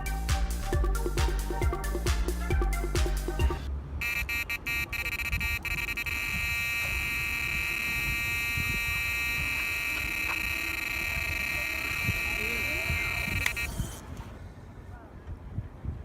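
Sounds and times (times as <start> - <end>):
background music with a beat: 0.0 - 3.7
bite alarm high tone: 4.0 - 13.7.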